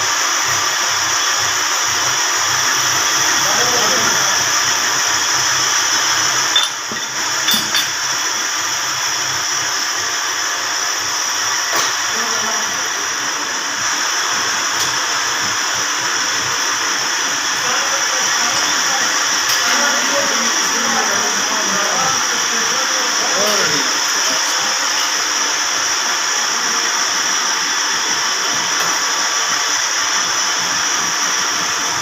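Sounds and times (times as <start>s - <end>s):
grinding machine whining: 0.0s - 32.0s.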